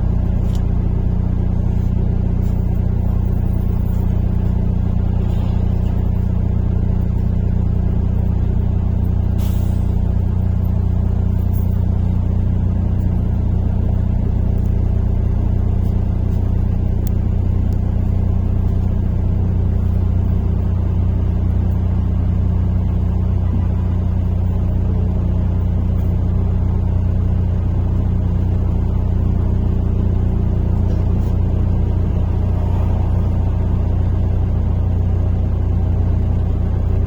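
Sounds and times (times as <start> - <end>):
bus engine drone: 0.0 - 37.0.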